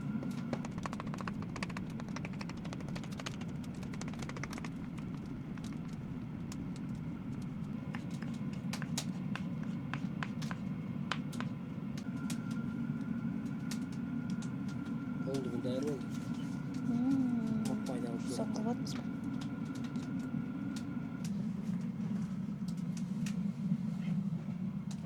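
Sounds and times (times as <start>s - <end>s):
food being mashed by hand: 0.0s - 11.6s
steady low hum: 0.0s - 25.0s.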